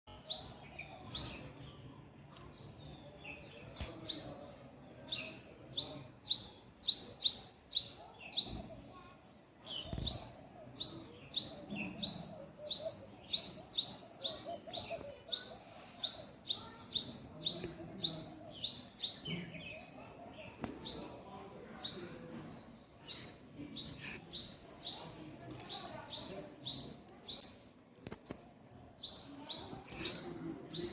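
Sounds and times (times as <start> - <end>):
small bird chirping: 9.8 - 19.9, 23.0 - 30.9.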